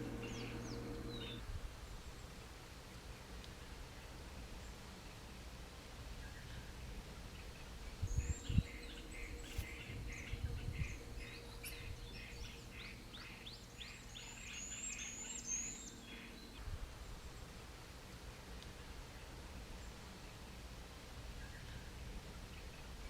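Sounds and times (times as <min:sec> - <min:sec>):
birds chirping and whistling: 0:00.0 - 0:01.4
low thumps: 0:00.0 - 0:01.4
faint low hum: 0:00.0 - 0:23.0.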